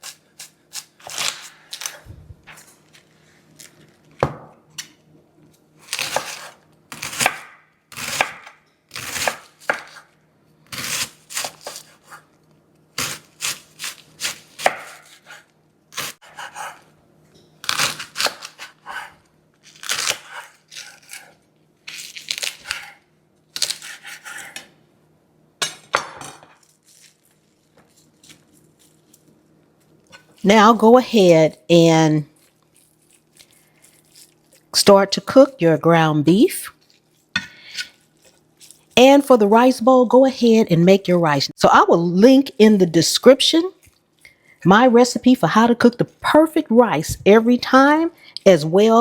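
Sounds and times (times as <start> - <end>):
knife chopping garlic: 5.9 - 10.0, 13.0 - 15.4, 16.0 - 16.9, 19.9 - 21.3.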